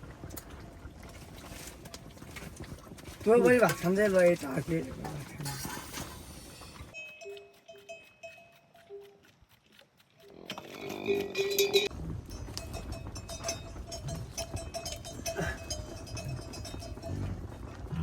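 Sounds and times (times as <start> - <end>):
livestock bells clanking: 3.2 - 6.1, 6.8 - 9.2, 11.0 - 18.0.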